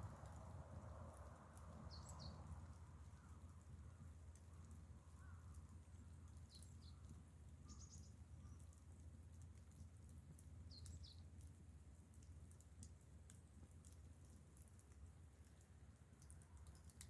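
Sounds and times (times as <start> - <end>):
faint ticks: 4.3 - 17.0.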